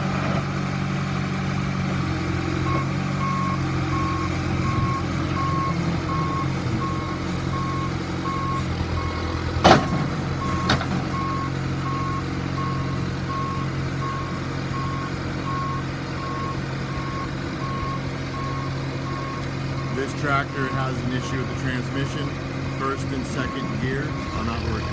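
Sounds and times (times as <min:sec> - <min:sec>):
diesel engine running: 0:00.0 - 0:24.9
reverse alarm beeping: 0:02.6 - 0:09.2, 0:10.4 - 0:21.5, 0:22.8 - 0:24.9
loud clunk: 0:09.6 - 0:11.1.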